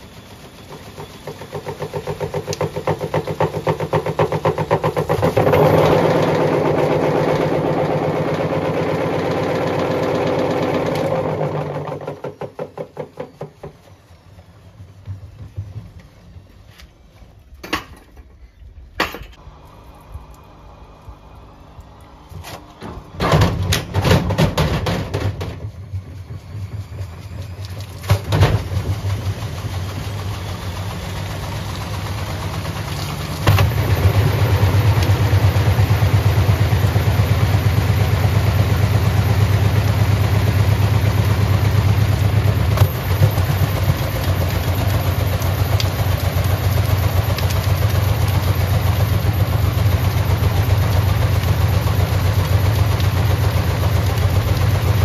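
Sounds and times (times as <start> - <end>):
washing machine drum running: 0.0 - 16.6, 21.7 - 55.0
washing machine clunks and knocks: 11.3 - 13.9, 22.8 - 26.0, 28.0 - 29.1.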